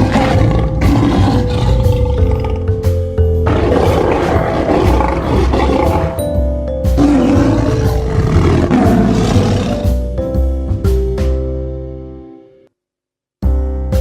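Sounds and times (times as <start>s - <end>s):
big cat roaring: 0.0s - 2.8s, 3.4s - 6.3s, 7.0s - 10.0s
background music: 0.0s - 12.7s, 13.4s - 14.0s.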